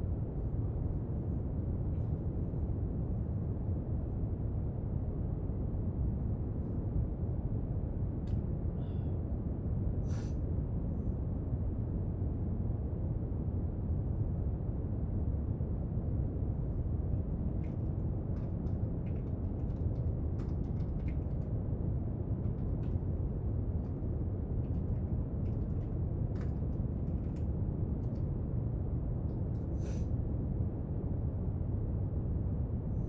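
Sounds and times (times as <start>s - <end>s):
small clicks and taps on desk: 17.6s - 21.5s.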